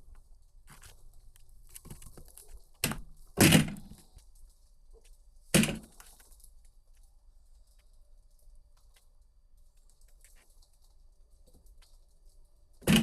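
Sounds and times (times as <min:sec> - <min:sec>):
wood cracking and knocking: 0:01.7 - 0:04.2, 0:05.0 - 0:06.4, 0:12.8 - 0:13.0.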